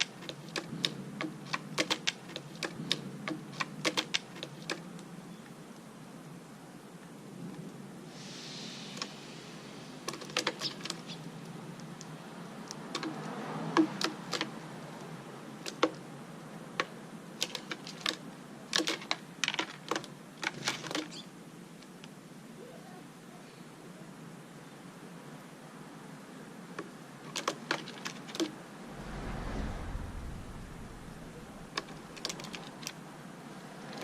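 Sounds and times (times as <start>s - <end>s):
faint background hiss: 0.0s - 12.9s, 28.2s - 34.0s.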